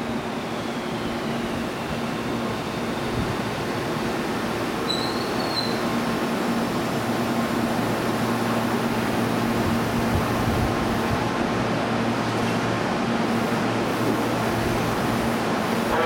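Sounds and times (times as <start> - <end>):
electric train slowing to stop: 0.0 - 10.1, 12.1 - 16.0
short high squeal: 4.9 - 5.9.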